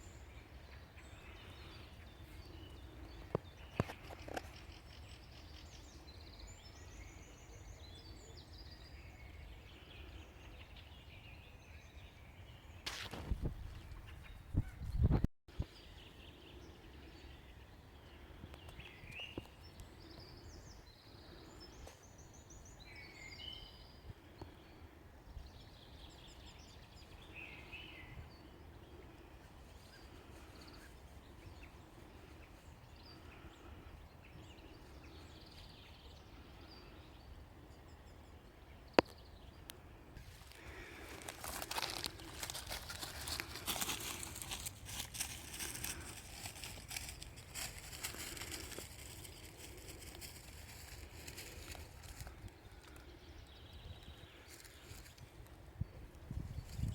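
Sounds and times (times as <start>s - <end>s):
close crackling and rustling: 12.8s - 15.3s, 40.2s - 53.1s.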